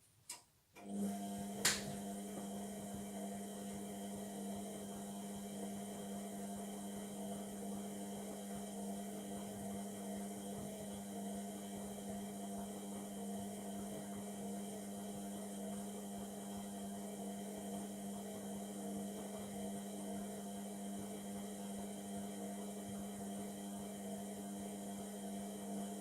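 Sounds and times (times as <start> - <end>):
washing machine electric hum: 0.2 - 26.0
washing machine click: 1.6 - 2.0.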